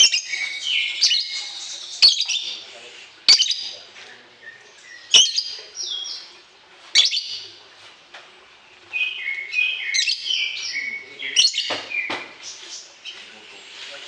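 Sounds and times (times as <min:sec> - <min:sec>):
small bird chirping: 0:00.0 - 0:06.3, 0:07.0 - 0:07.5.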